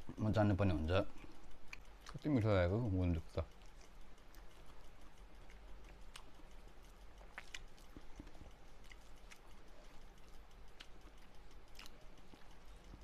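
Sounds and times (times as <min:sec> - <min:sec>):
man chewing food: 0:01.0 - 0:02.3, 0:03.4 - 0:13.0.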